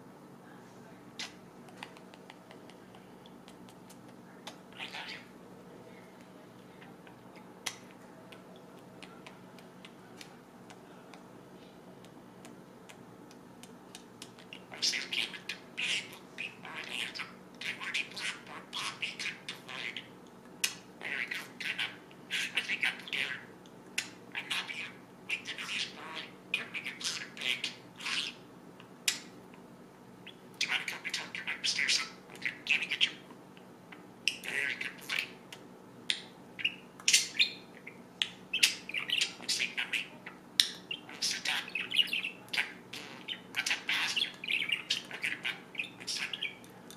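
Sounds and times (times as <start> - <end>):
steady low hum: 0.0 - 46.9
budgerigar chattering and chirping: 36.1 - 46.6.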